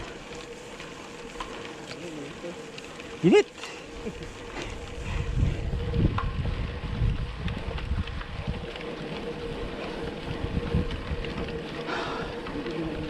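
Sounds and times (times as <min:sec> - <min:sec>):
traffic rumble: 0:00.0 - 0:13.0
wind buffeting microphone: 0:03.8 - 0:13.0.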